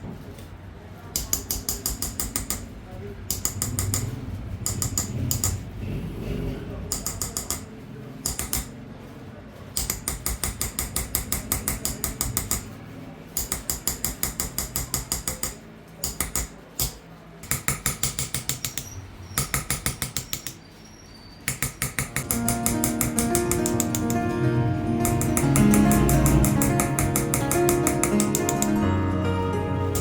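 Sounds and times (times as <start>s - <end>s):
hammer tapping metal: 1.1s - 2.7s, 3.3s - 5.6s, 6.9s - 8.8s, 9.8s - 12.8s, 13.4s - 20.6s, 21.5s - 28.9s.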